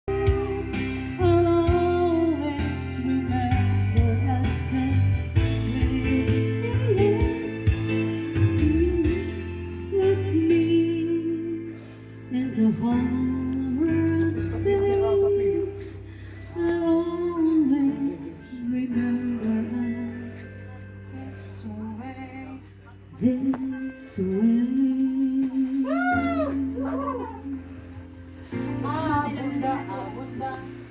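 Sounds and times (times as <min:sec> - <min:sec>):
person singing slow melody: 0:00.0 - 0:30.9
instrumental accompaniment: 0:00.1 - 0:21.8.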